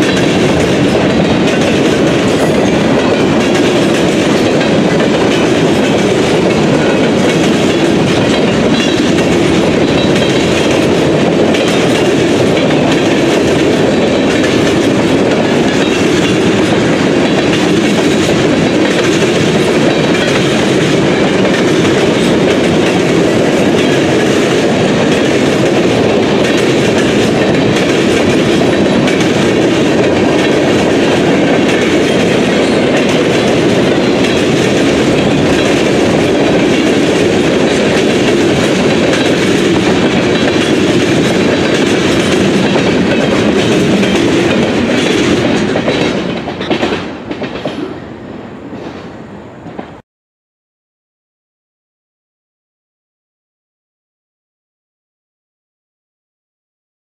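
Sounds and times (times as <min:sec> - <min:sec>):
steel wheels rolling on rail: 0:00.0 - 0:50.0.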